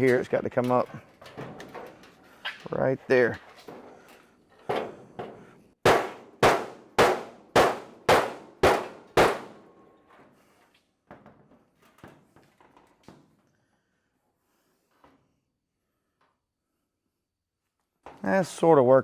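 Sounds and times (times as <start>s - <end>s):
hammer striking steel panel: 5.9s - 9.6s.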